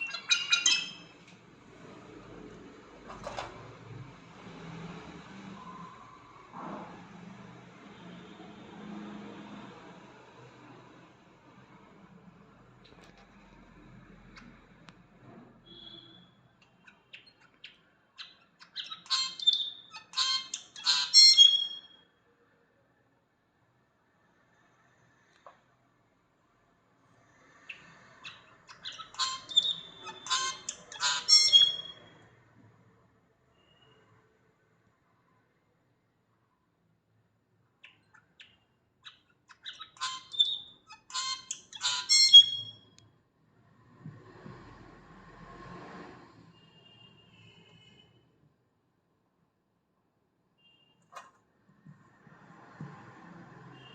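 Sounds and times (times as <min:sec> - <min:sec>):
bird whistles: 0:00.0 - 0:01.1, 0:15.7 - 0:16.4, 0:18.7 - 0:22.0, 0:28.3 - 0:32.0, 0:39.6 - 0:42.8
songbird singing: 0:00.0 - 0:01.1.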